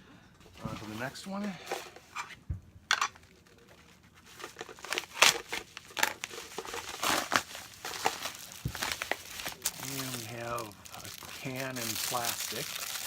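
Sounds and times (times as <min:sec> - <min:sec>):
packaging crinkling and tearing: 0:03.3 - 0:13.0.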